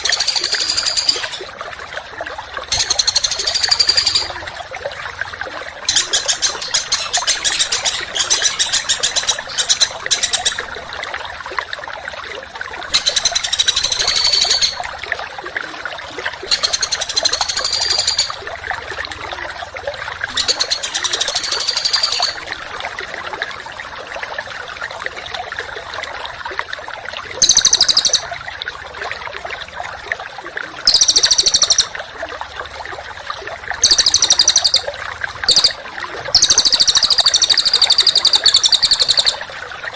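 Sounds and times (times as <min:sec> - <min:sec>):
trickling water hiss: 0:00.0 - 0:39.9
songbird singing harsh notes: 0:02.7 - 0:04.4, 0:13.0 - 0:14.8, 0:16.5 - 0:18.4, 0:20.4 - 0:22.4, 0:27.4 - 0:28.3, 0:30.9 - 0:31.9, 0:33.8 - 0:34.9, 0:35.5 - 0:35.8, 0:36.4 - 0:39.4.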